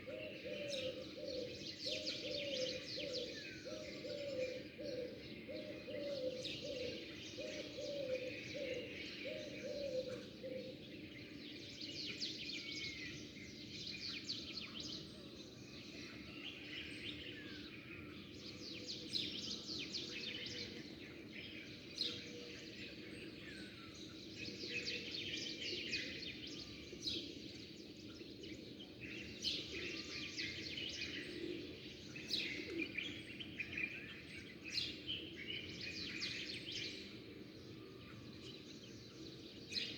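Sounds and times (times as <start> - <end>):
dove cooing: 0.0 - 10.7.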